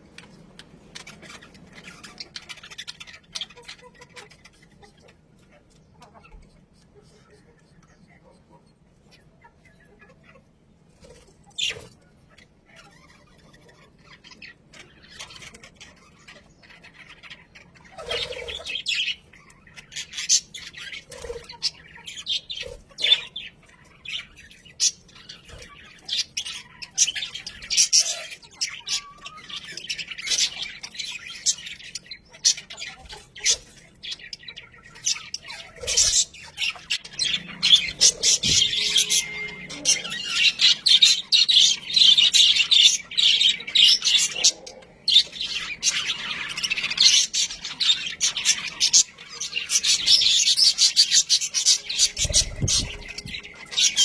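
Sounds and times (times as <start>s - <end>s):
budgerigars chirping: 0.1s - 54.0s.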